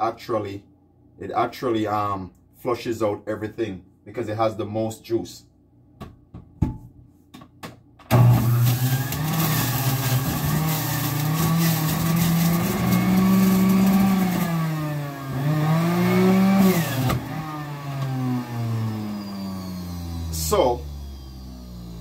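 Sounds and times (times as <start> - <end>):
electric juicer motor running: 8.1 - 22.0.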